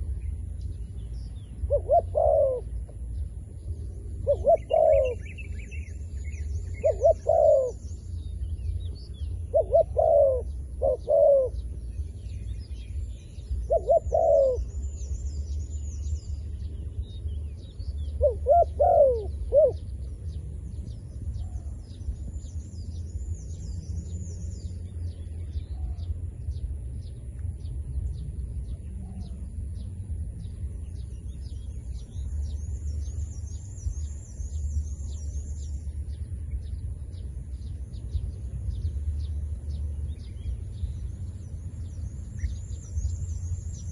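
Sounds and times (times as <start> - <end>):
small birds chirping: 0.0 - 43.9
steady low rumble: 0.0 - 43.9
dove cooing: 1.7 - 2.7, 4.2 - 5.4, 6.8 - 7.8, 9.4 - 11.7, 13.7 - 14.7, 18.2 - 20.0.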